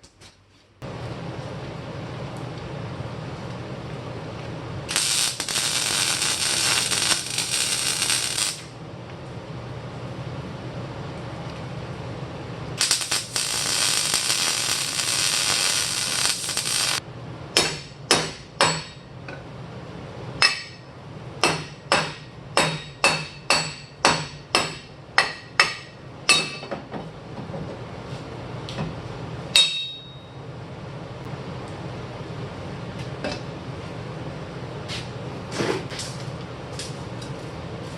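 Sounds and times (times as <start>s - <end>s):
welding hiss: 4.9s - 8.7s, 12.8s - 17.0s.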